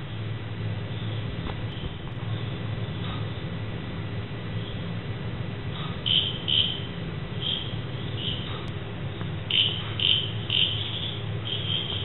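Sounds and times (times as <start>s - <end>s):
low steady rumble: 0.0s - 12.0s
bird piping calls: 5.8s - 8.7s, 9.5s - 12.0s.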